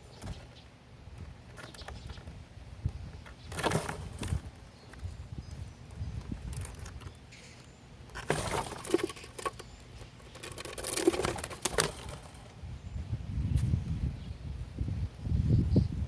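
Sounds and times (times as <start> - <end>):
birds fluttering at a feeder: 1.2 - 12.7.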